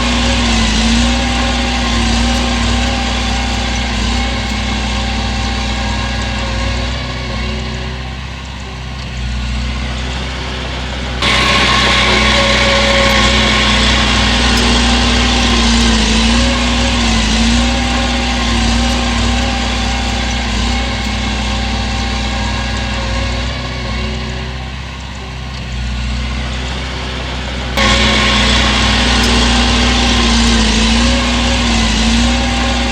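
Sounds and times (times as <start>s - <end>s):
heavy diesel engine running: 0.0s - 32.9s.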